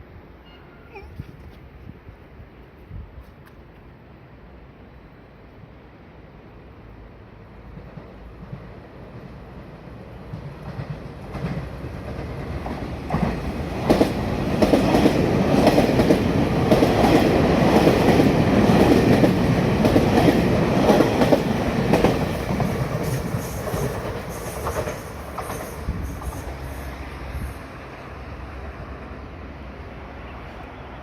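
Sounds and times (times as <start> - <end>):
electric train passing at speed: 3.7 - 31.0
train wheels clacking over rail joints: 10.2 - 26.7.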